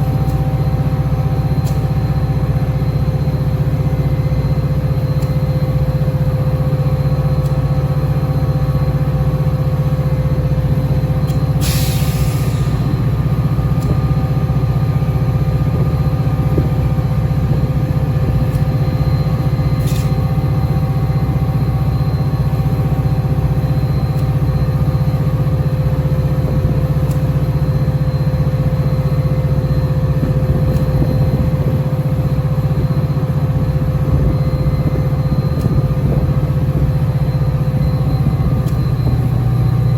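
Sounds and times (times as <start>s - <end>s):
diesel locomotive idling hum: 0.0s - 39.9s
air hiss burst: 11.6s - 12.8s
sharp click: 19.8s - 20.2s, 38.6s - 38.9s.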